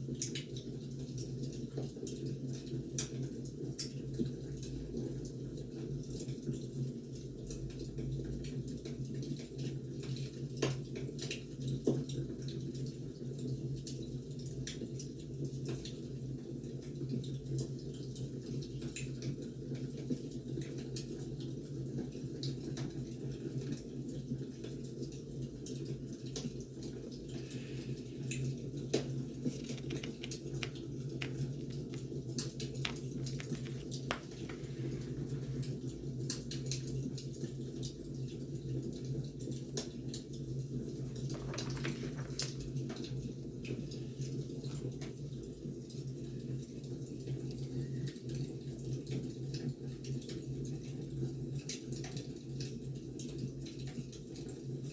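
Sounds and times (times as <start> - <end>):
wood fire crackling: 27.3 - 35.9.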